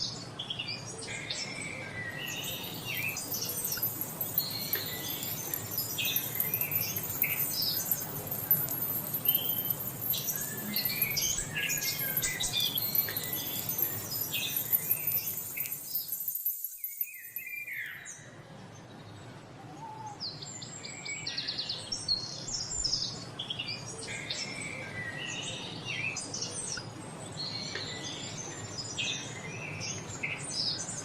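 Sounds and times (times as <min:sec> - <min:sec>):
songbirds chirping: 0:00.0 - 0:31.0
steady background hiss: 0:00.1 - 0:18.4.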